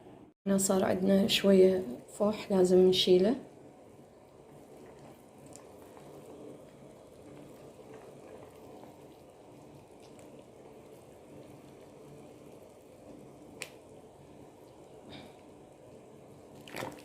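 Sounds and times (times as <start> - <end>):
syrup bubbling faintly: 3.4 - 17.0.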